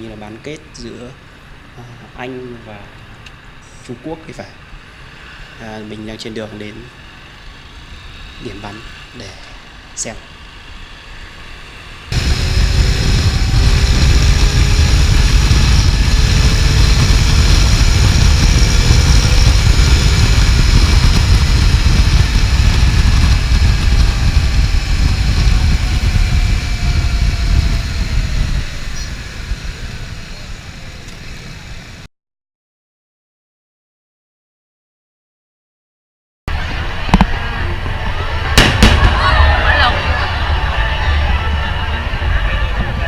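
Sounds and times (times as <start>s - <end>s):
engine and road traffic noise: 0.0s - 32.1s, 36.5s - 43.0s
wind buffeting microphone: 12.1s - 32.1s.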